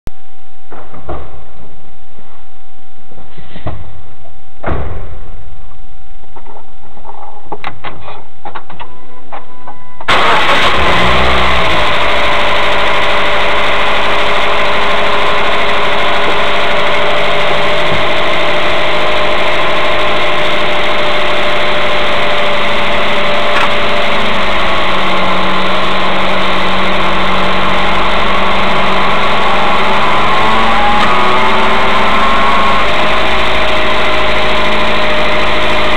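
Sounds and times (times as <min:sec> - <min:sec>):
car engine starting and idling: 0:10.1 - 0:35.9.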